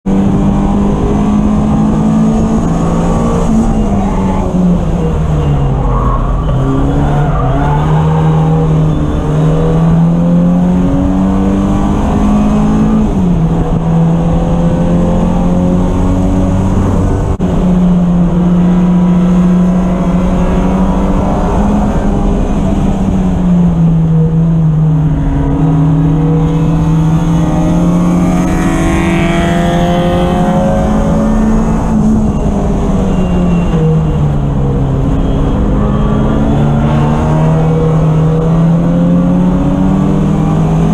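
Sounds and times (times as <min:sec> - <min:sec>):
race car engine revving: 0:00.0 - 0:40.9.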